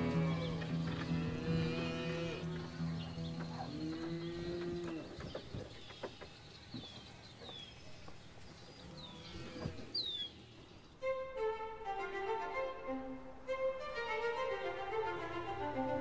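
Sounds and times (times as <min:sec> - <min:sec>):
string music: 0:00.0 - 0:04.6, 0:11.0 - 0:16.0
birds chirping: 0:00.0 - 0:11.0.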